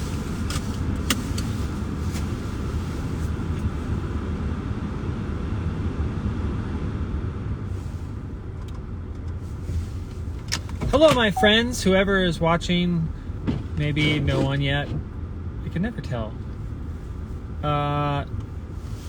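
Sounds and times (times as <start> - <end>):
car engine idling: 7.8 - 19.0.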